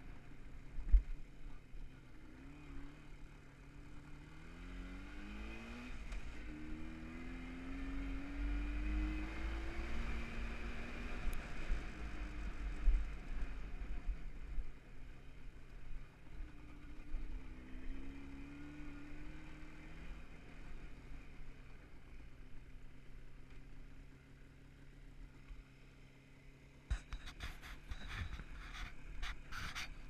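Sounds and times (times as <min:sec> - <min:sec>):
motorcycle engine running: 0:09.2 - 0:30.0
hand knocking and scraping camera: 0:26.9 - 0:30.0.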